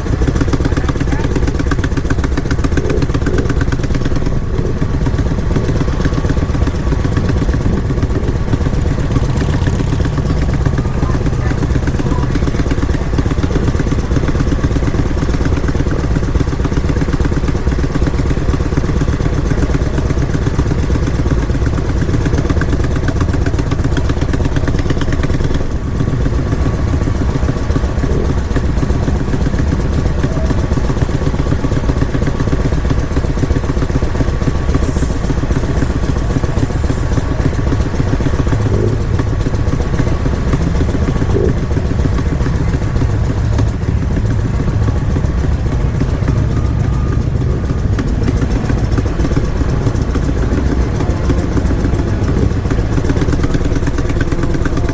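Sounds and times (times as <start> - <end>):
motorcycle engines rumbling: 0.0 - 54.9.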